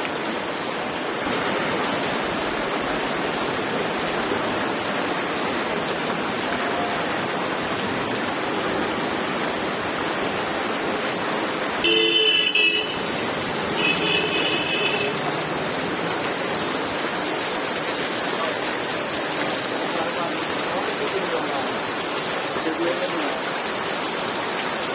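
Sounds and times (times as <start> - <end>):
heavy rain pouring: 0.0 - 24.9
vehicle horn honking: 11.8 - 13.2, 13.8 - 15.2.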